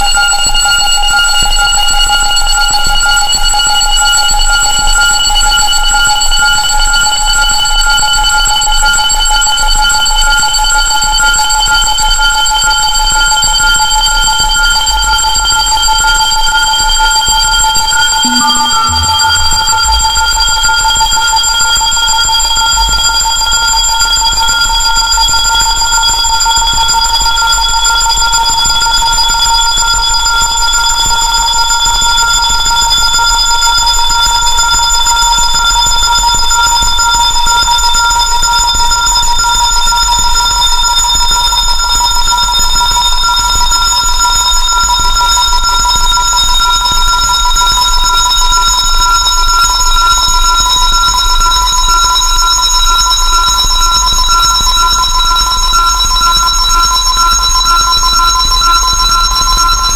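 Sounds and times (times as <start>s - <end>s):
low hum: 18.2s - 20.7s
steady synthesized tones: 18.2s - 20.9s.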